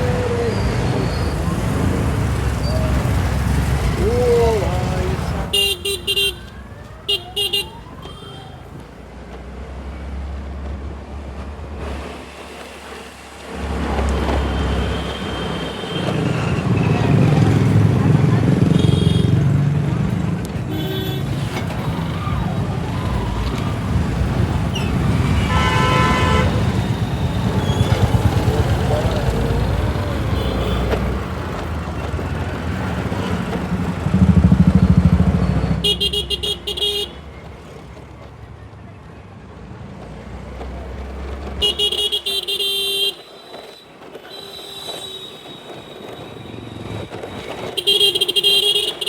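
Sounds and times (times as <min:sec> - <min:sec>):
wind and road noise: 0:00.0 - 0:49.0
vehicle horn honking: 0:05.5 - 0:08.6, 0:14.4 - 0:16.4, 0:18.7 - 0:19.4, 0:20.7 - 0:21.4, 0:25.2 - 0:27.9, 0:35.8 - 0:37.2, 0:41.6 - 0:43.6, 0:47.7 - 0:49.0.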